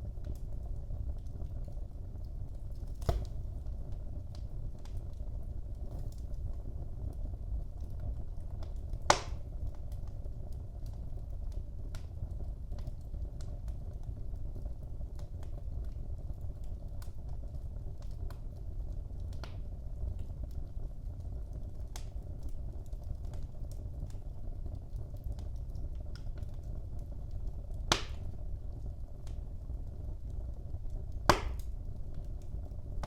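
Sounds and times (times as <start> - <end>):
fireplace flames rumbling: 0.0 - 33.0
wood crackles and snaps: 0.1 - 33.0
loud wood pop: 3.0 - 3.4, 9.1 - 9.4, 27.9 - 28.3, 31.3 - 31.7.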